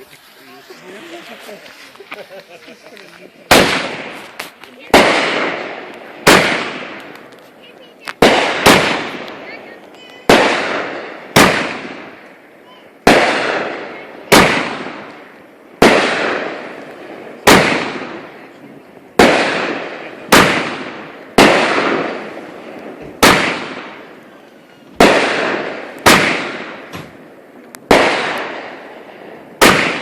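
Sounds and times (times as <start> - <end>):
fireworks bangs: 0.0 - 30.0.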